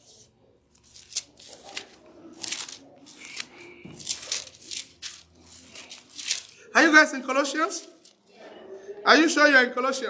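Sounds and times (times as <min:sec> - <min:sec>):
thin paper pages flipping: 0:00.0 - 0:06.6, 0:07.7 - 0:08.2.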